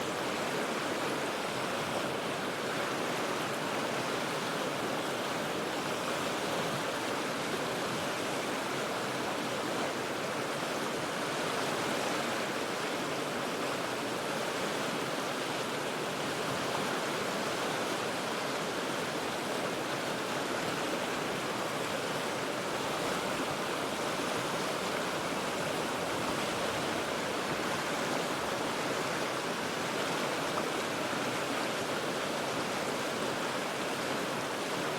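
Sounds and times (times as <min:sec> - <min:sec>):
river rushing over rocks: 0:00.0 - 0:34.9.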